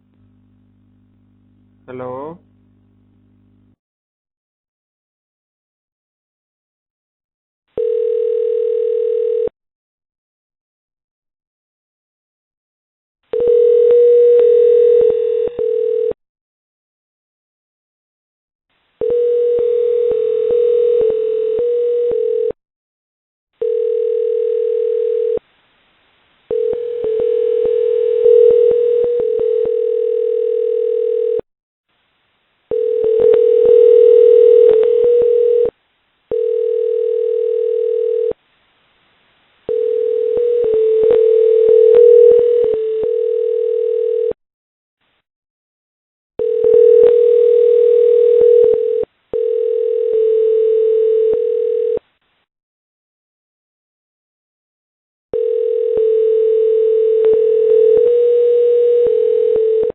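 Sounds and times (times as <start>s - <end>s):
steady telephone tone: 7.8s - 9.5s, 13.3s - 16.2s, 19.0s - 22.6s, 23.6s - 25.4s, 26.5s - 31.4s, 32.7s - 38.4s, 39.7s - 44.4s, 46.4s - 52.1s, 55.3s - 59.9s.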